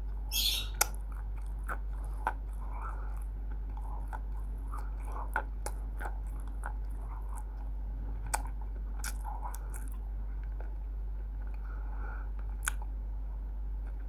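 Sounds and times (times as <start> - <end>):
clay being bitten and chewed: 0.8 - 10.8.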